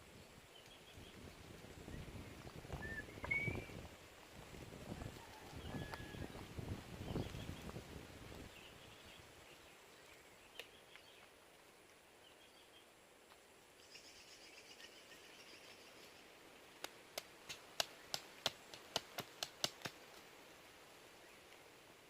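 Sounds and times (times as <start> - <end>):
forest ambience: 0.0 - 22.0.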